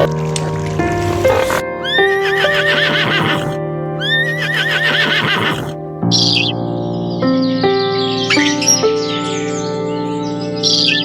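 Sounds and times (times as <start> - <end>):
background music: 0.0 - 11.0
horse whinnying: 1.2 - 5.8.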